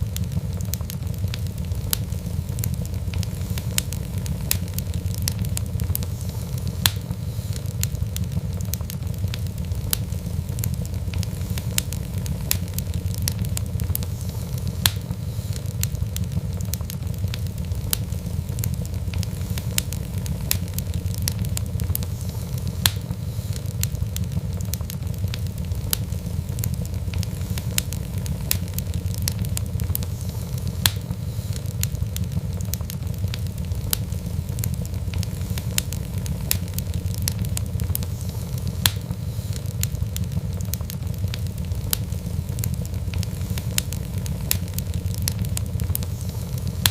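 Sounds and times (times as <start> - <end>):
wood fire crackling: 0.0 - 46.9.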